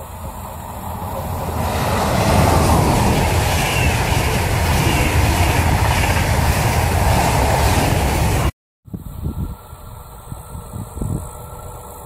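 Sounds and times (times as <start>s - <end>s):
train passing at speed: 0.0s - 8.5s
wheels rumbling on rail: 0.0s - 12.0s.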